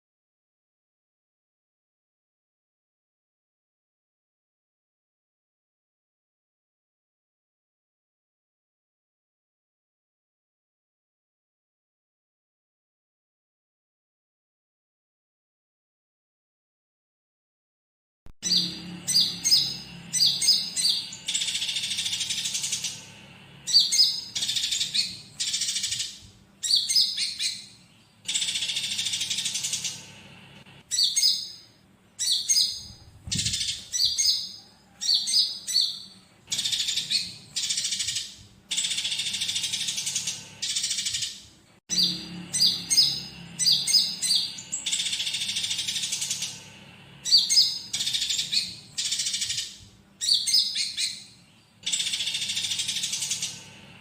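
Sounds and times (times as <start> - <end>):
songbird singing: 18.4 - 54.0
sparrows chattering: 18.4 - 54.0.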